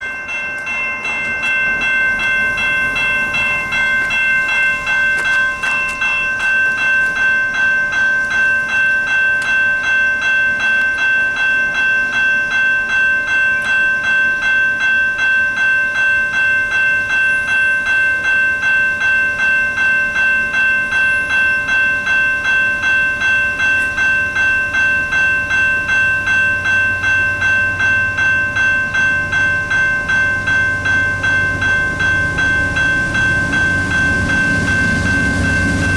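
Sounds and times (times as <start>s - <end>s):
train rumble: 0.0s - 8.4s, 20.4s - 35.9s
railway bell ringing: 0.0s - 35.9s.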